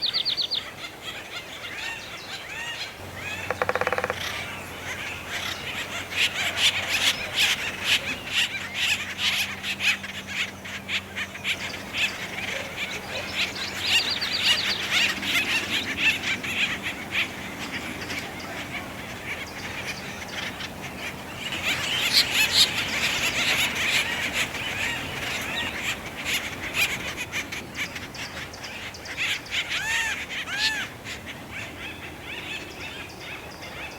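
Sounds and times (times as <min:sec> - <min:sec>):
woodpeckers calling raucously: 0:01.2 - 0:31.7.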